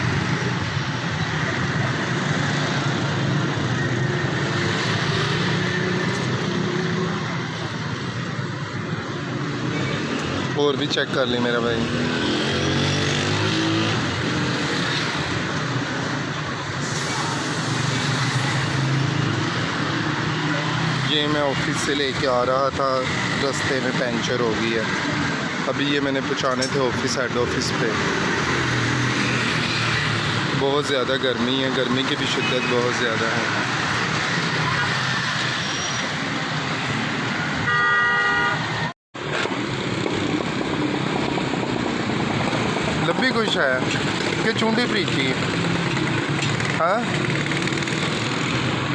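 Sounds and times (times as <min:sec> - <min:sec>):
road noise: 0:00.0 - 0:48.9
vehicle horn: 0:37.6 - 0:38.8
vehicle engines running: 0:39.2 - 0:48.9.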